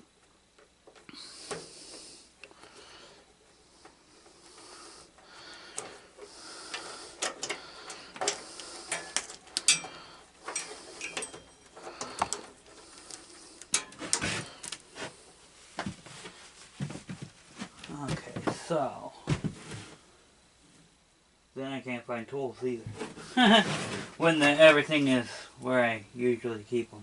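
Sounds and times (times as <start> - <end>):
metallic ring: 8.9 - 11.8
metal hand tools clattering: 8.9 - 12.2.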